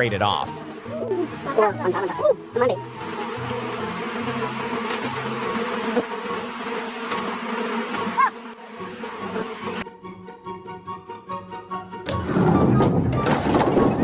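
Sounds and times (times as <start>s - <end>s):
steady buzzing hum: 0.0s - 9.8s.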